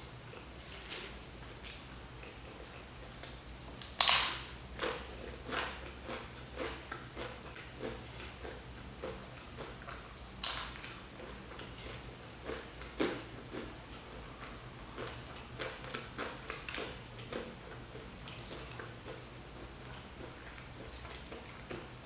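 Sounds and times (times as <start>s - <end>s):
crunch of biting potato chips: 3.8s - 8.6s, 9.8s - 11.0s
close-up chewing: 4.8s - 22.0s.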